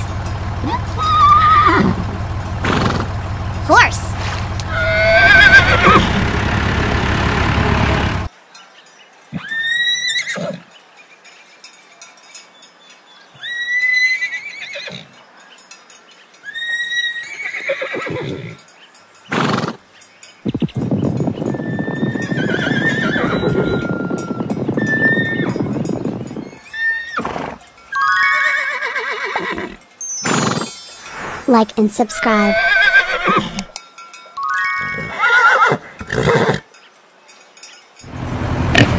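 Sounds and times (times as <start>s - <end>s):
horses whinnying: 0.6s - 3.1s, 4.6s - 6.5s, 9.3s - 10.7s, 13.4s - 15.2s, 16.4s - 18.6s, 19.3s - 19.8s, 21.4s - 25.8s, 26.5s - 30.8s, 32.2s - 33.7s, 34.8s - 36.7s.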